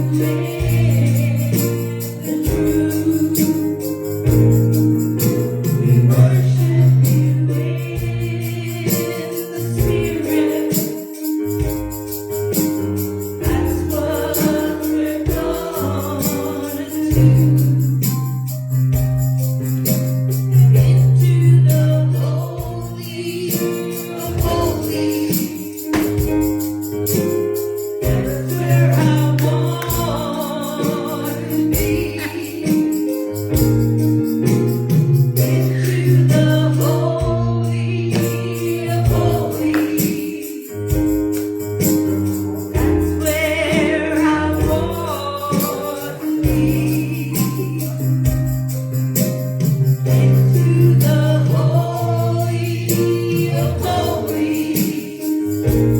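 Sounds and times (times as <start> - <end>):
voices singing gospel: 0.0 - 18.9, 19.5 - 55.9
percussion hits: 0.0 - 55.9.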